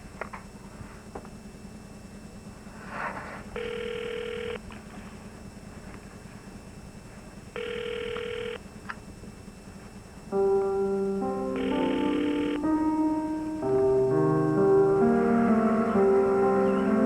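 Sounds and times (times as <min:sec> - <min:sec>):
telephone ringing: 0:03.6 - 0:04.7, 0:07.6 - 0:08.7, 0:10.4 - 0:13.8.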